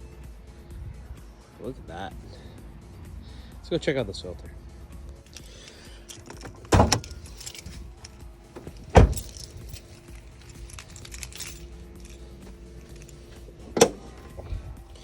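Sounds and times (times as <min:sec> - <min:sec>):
light clicking and jingling: 0:05.1 - 0:15.0
solid thuds: 0:06.2 - 0:14.8.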